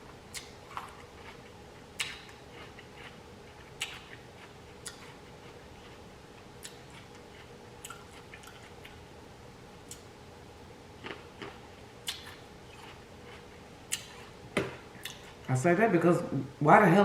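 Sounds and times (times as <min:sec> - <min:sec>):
faint steady hum: 0:00.0 - 0:17.0
wet chewing mouth clicks: 0:00.3 - 0:06.0, 0:06.6 - 0:09.0, 0:11.0 - 0:14.4, 0:15.0 - 0:15.5.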